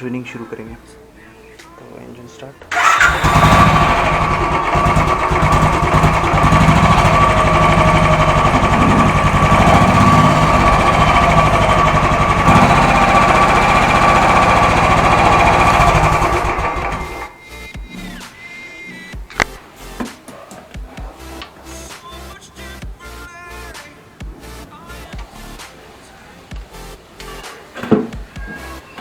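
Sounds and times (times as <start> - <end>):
motorcycle engine idling: 2.7 - 17.9.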